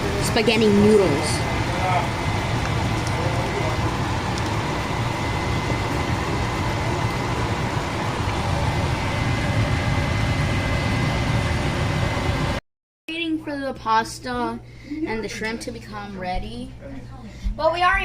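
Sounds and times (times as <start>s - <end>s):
stovetop cooking rushing noise: 0.0s - 12.6s.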